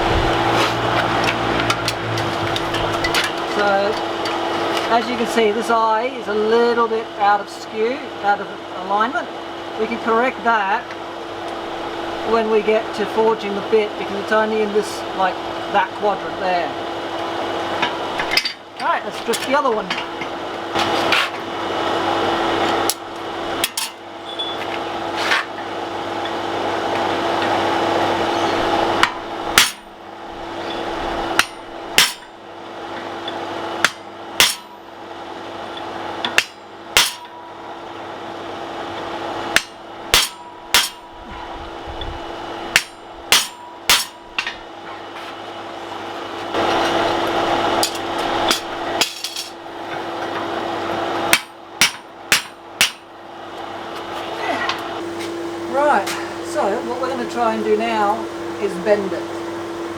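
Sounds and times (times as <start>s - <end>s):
steady hum: 0.0s - 59.9s
hammer striking metal: 29.0s - 29.9s, 30.6s - 32.3s, 33.8s - 34.8s, 36.3s - 37.4s, 39.5s - 41.2s, 42.7s - 44.6s, 51.3s - 53.1s.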